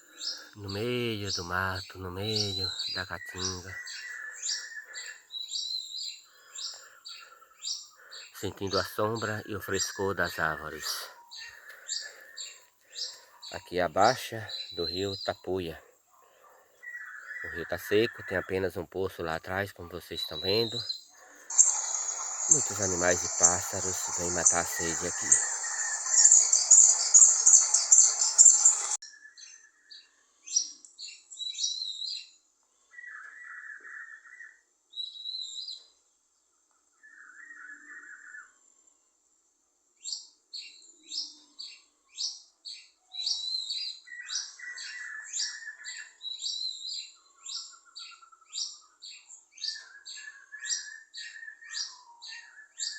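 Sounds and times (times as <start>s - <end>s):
birds calling and chirping: 0.0s - 36.0s, 40.1s - 52.9s
loud hissing noise: 21.5s - 29.0s.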